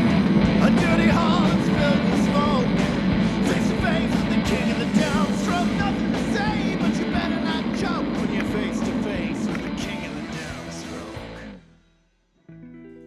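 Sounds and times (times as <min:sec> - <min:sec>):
punk rock song: 0:00.0 - 0:11.9.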